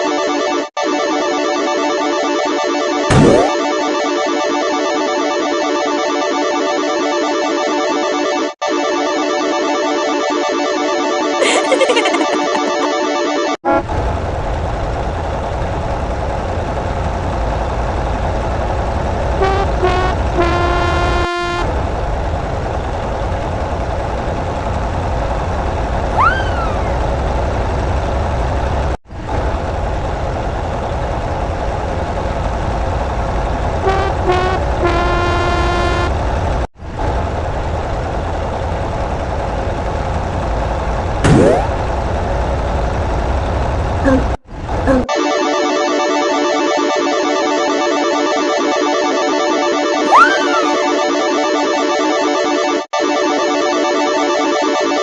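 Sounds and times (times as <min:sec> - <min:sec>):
heavy vehicle engine rumbling: 0:13.7 - 0:45.1
vehicle horn toots and blast: 0:19.4 - 0:21.7, 0:33.9 - 0:36.1.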